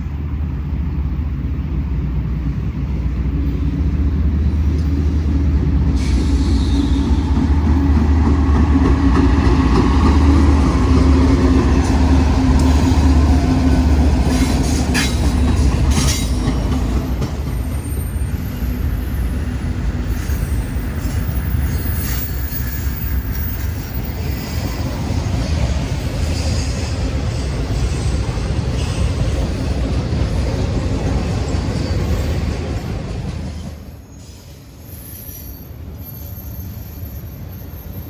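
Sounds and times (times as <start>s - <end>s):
freight train rolling past: 0.0s - 38.0s.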